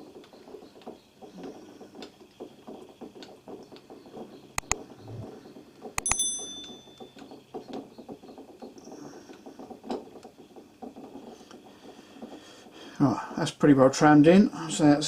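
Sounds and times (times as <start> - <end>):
metal-on-metal taps: 6.0 - 7.2.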